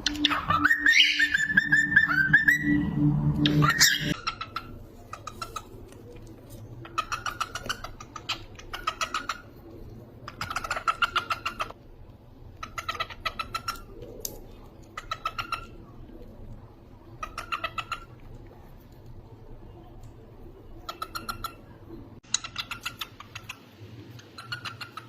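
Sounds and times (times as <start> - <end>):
cockatiels chirping rapidly: 0.0 - 5.8, 6.8 - 9.5, 10.3 - 11.8, 12.6 - 14.0, 14.9 - 15.8, 17.2 - 18.2, 20.8 - 23.6, 24.3 - 25.0.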